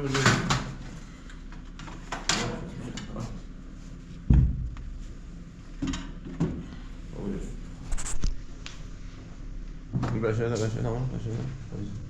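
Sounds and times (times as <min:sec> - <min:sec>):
low steady hum: 0:00.0 - 0:12.0
loud dull thump: 0:04.3 - 0:05.0.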